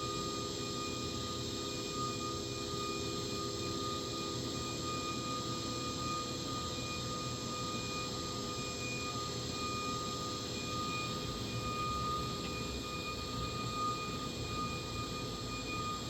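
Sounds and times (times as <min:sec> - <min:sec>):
machine hum and hiss: 0:00.0 - 0:16.0
machining center high whine: 0:00.0 - 0:16.0.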